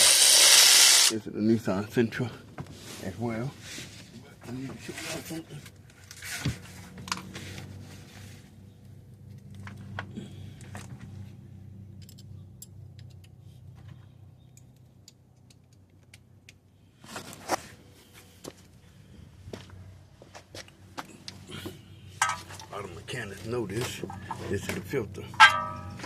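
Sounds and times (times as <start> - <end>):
metallic clicks of tools: 12.0 - 13.4
low hum: 24.0 - 26.0.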